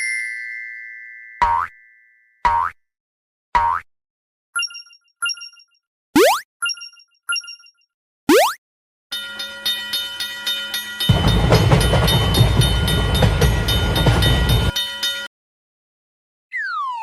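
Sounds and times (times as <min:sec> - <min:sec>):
train wheel clicks: 0:10.6 - 0:15.3.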